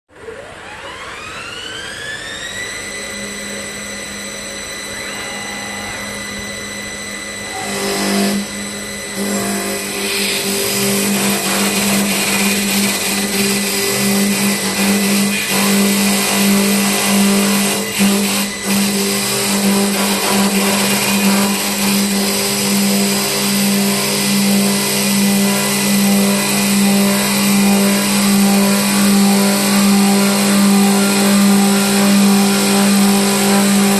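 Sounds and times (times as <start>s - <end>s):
lathe spindle whining: 0.4s - 33.9s
cutters rasping wood: 9.2s - 33.9s.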